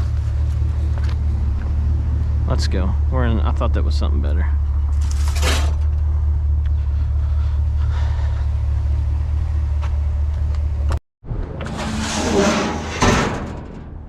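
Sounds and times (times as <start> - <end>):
truck rumbling from inside cab: 0.0 - 11.0.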